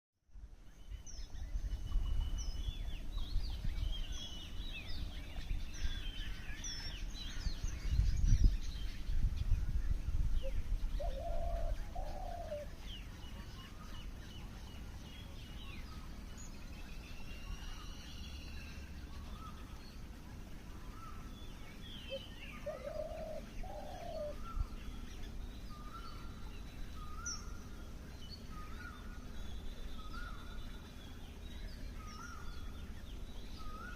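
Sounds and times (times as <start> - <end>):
small birds chirping: 0.3 - 33.9
dove cooing: 10.4 - 12.8, 22.1 - 24.6.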